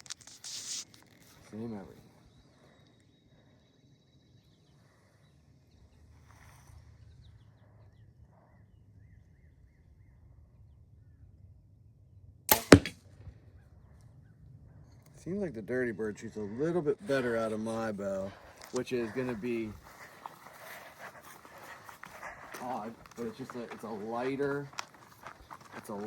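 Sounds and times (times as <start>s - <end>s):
bowstring release snap: 12.5s - 13.0s
arrow striking target: 12.5s - 13.1s.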